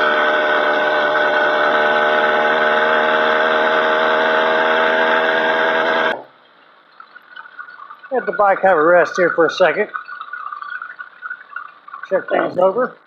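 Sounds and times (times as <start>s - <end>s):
small engine idling: 0.0s - 6.2s.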